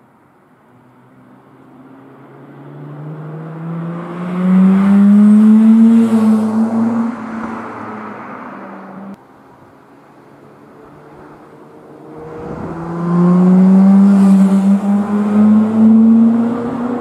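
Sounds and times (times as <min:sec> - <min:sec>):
rotary engine car driving past: 0:02.4 - 0:09.2, 0:10.6 - 0:17.0.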